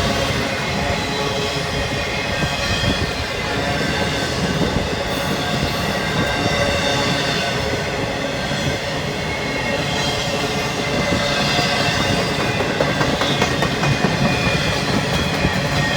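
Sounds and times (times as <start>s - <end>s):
train wheels rumbling on rails: 0.0s - 15.9s.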